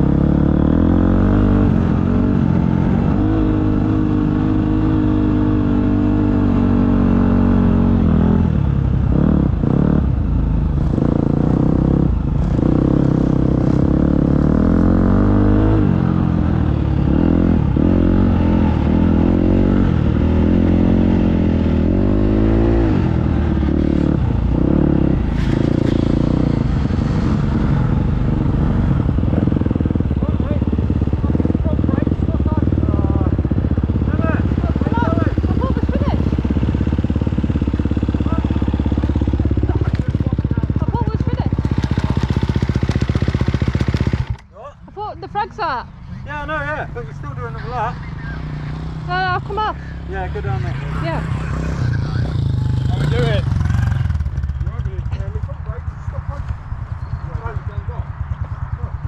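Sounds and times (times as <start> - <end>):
dirt bike engine revving: 0.0 - 44.4, 46.5 - 55.4.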